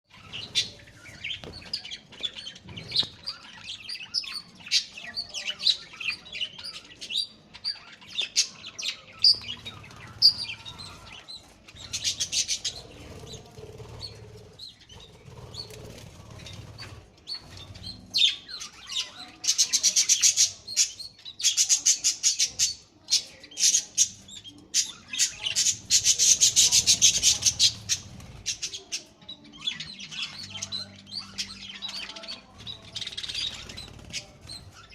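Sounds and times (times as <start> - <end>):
parrots chirping: 0.1 - 34.9
rapid buzzing parrot chatter: 9.0 - 34.9.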